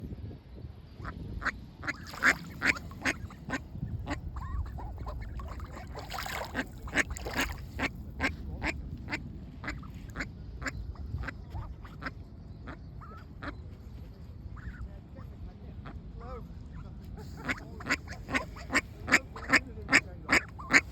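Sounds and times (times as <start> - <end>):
ducks quacking: 1.8 - 13.6, 17.3 - 20.9.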